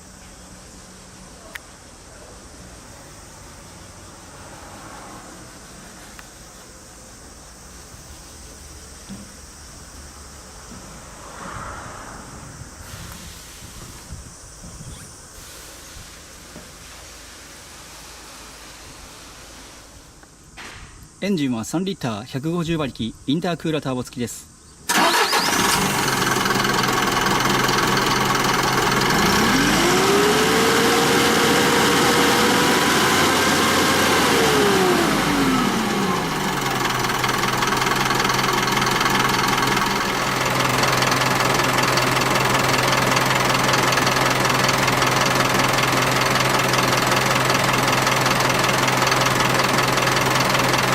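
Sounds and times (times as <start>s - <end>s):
diesel truck engine idling and revving: 24.9s - 50.9s.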